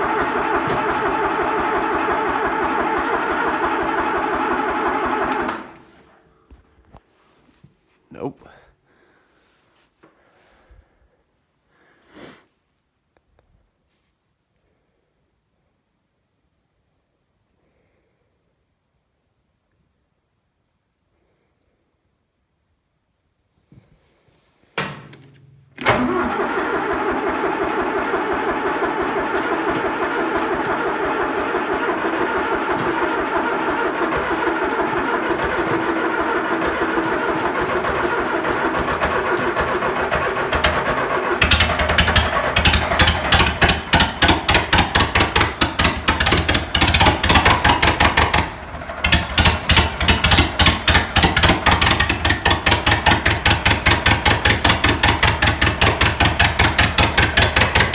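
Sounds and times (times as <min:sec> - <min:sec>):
diesel engine cranking: 0:00.0 - 0:06.2, 0:24.9 - 0:57.9.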